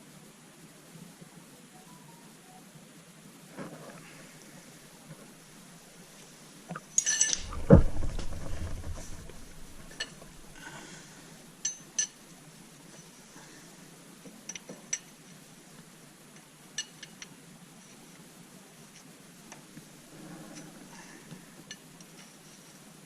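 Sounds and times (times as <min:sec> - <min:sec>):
metal tools clinking: 0:07.0 - 0:10.6
heavy metal clunk: 0:07.2 - 0:10.6.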